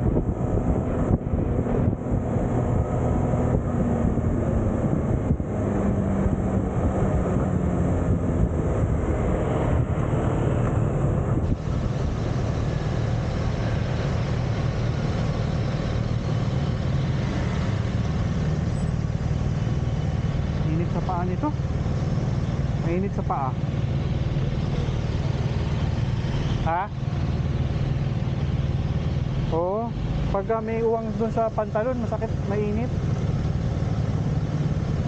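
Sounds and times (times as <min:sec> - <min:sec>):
road noise: 0:00.0 - 0:35.0
motorcycle engine running: 0:09.7 - 0:35.0.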